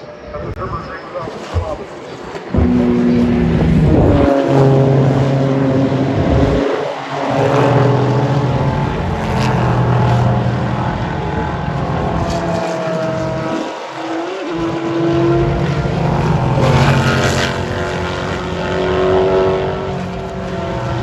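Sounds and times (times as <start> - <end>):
race cars passing at high revs: 1.0 - 21.0.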